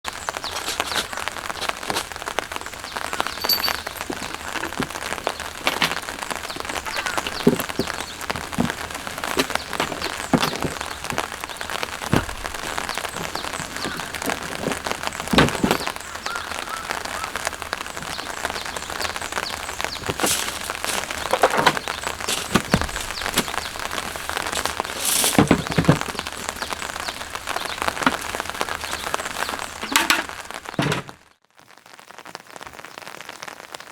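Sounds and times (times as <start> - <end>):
raindrops striking close by: 0.0 - 33.9
steady rain: 0.0 - 33.9.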